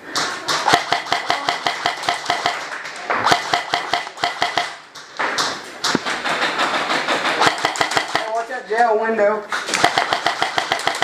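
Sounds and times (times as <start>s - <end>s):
airsoft rifle firing full-auto: 0.6s - 4.8s, 6.7s - 8.4s, 9.7s - 11.0s.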